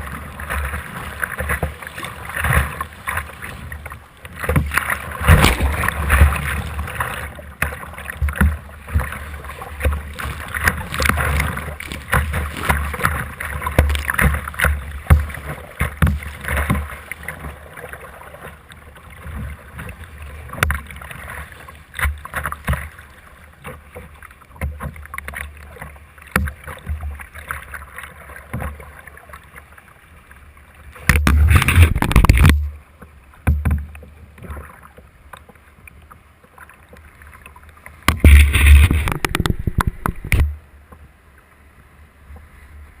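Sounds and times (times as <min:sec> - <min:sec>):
water splashing: 0:00.0 - 0:32.8, 0:36.5 - 0:40.6
paddle strokes: 0:00.0 - 0:41.1
low rumbling noise: 0:38.2 - 0:40.7.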